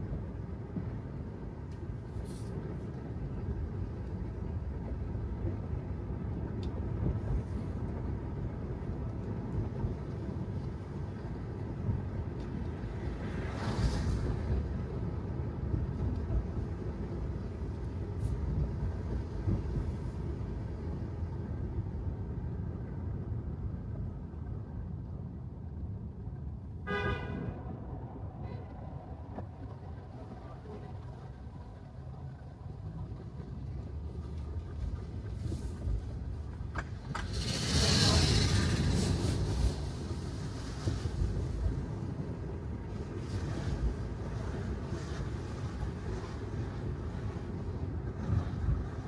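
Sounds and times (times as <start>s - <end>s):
car driving on wet road: 2.1s - 21.8s, 26.9s - 48.9s
car horn honk: 26.9s - 27.7s
tyre hiss on wet road: 37.1s - 41.4s.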